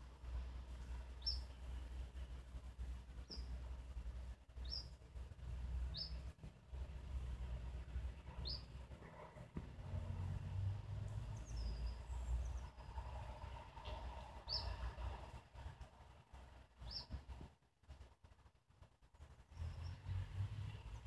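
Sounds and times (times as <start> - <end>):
small bird chirping: 1.1 - 1.6, 3.2 - 3.6, 4.6 - 5.0, 5.9 - 6.3, 8.3 - 8.8, 11.2 - 12.9, 14.4 - 14.8, 16.8 - 17.3, 19.4 - 20.2.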